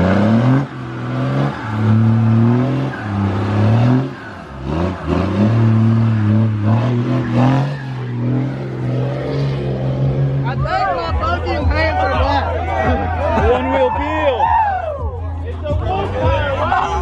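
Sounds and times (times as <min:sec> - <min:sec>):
truck engine revving hard: 0:00.0 - 0:13.2.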